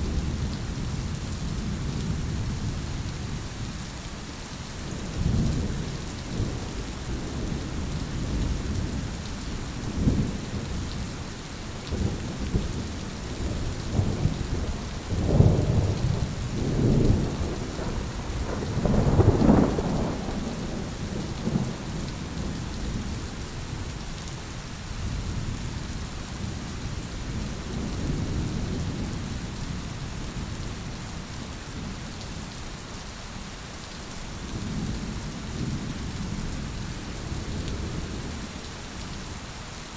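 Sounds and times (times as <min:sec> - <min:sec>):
heavy rain: 0:00.0 - 0:39.9
rolling thunder: 0:11.9 - 0:23.2.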